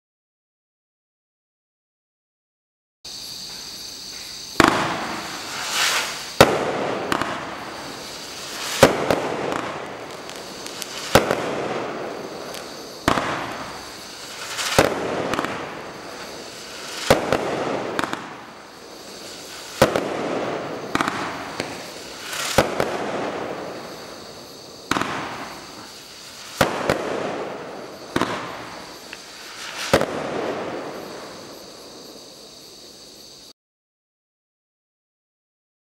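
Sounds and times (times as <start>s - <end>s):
firework shell bursts: 4.5s - 31.8s
firework launch reports: 4.6s - 32.2s.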